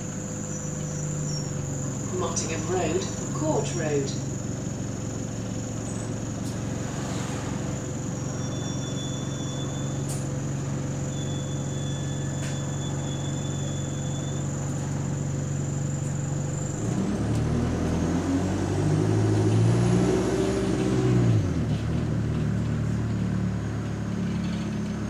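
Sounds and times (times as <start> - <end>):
bus engine: 0.0 - 25.0
steady high hum: 1.8 - 8.1.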